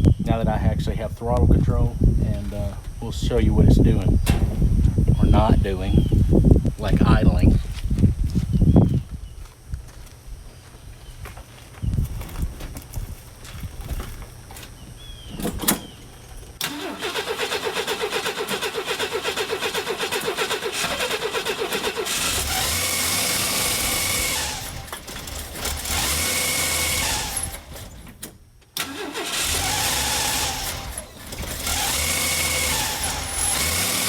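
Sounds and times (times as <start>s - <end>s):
engine running under throttle: 16.6s - 28.0s, 28.8s - 34.0s
engine cranking on starter: 16.6s - 34.0s.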